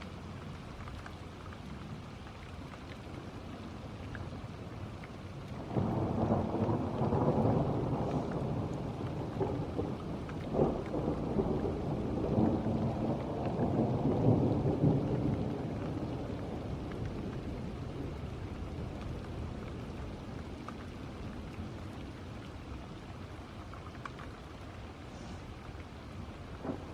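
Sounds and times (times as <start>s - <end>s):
steady rain: 0.0s - 26.9s
thunder rumbling: 5.6s - 20.0s, 26.6s - 26.9s.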